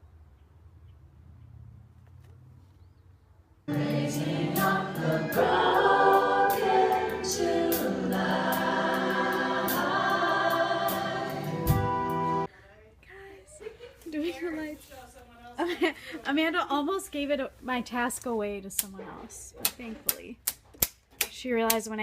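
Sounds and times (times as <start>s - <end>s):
choir singing in harmony: 3.7s - 12.5s.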